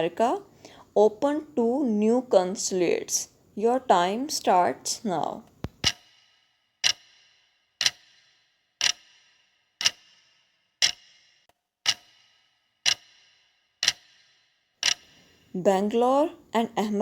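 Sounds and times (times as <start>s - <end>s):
clock ticking with brief ring: 6.8s - 7.2s, 7.8s - 9.2s, 9.8s - 15.2s.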